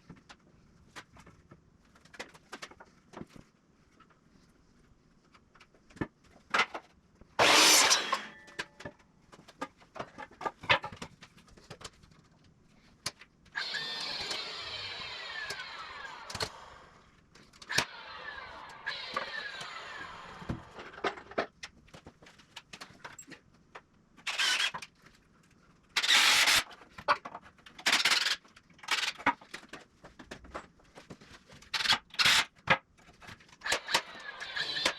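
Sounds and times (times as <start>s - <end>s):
power drill driving screws: 7.4s - 8.5s, 13.6s - 17.0s, 17.7s - 21.1s, 24.3s - 24.8s, 26.0s - 26.6s, 31.8s - 32.5s, 33.6s - 34.9s.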